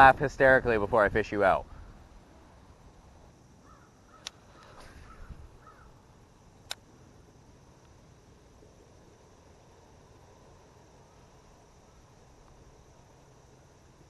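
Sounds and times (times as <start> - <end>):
bird calling faintly: 1.5 - 2.6, 3.6 - 6.1
sharp clicks: 4.2 - 4.8, 6.6 - 6.9.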